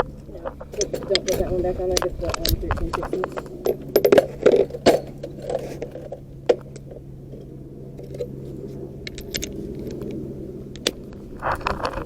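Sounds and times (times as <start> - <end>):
steady low hum: 0.0 - 12.0
metallic tool clicks: 9.0 - 11.0.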